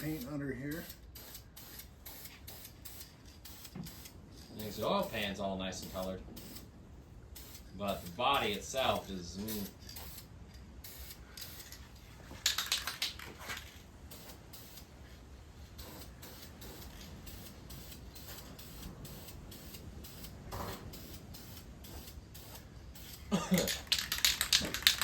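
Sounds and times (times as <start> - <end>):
spray can clicks and rattles: 9.5 - 14.9, 15.8 - 25.0.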